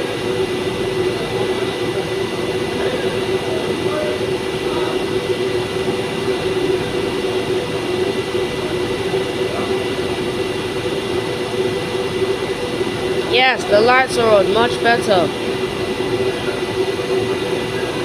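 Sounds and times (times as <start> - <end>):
standing train humming: 0.0 - 18.0.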